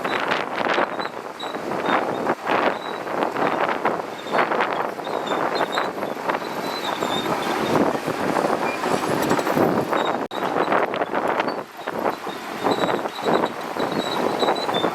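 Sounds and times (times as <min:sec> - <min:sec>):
bulldozer working: 0:00.0 - 0:14.9
faint high squeaks: 0:00.8 - 0:03.1, 0:04.2 - 0:07.8, 0:11.4 - 0:14.9.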